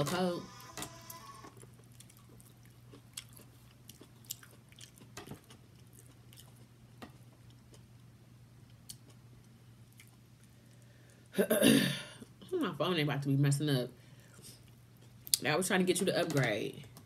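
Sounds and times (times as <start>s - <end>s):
chewing corn on the cob: 1.5s - 6.8s, 7.4s - 10.8s.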